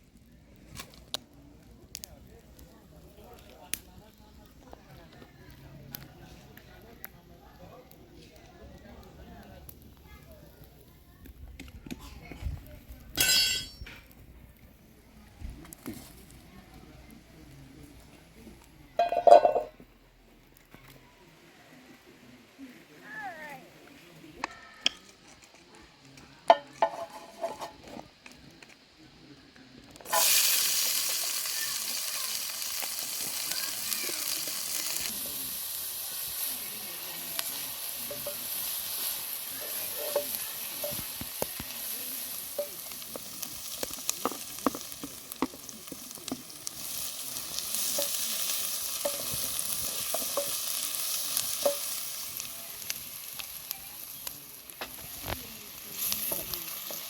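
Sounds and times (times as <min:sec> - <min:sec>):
food sizzling in hot oil: 0:18.9 - 0:19.7, 0:26.4 - 0:29.0, 0:29.9 - 0:57.0
utensil stirring and scraping: 0:26.6 - 0:28.0, 0:37.4 - 0:51.9.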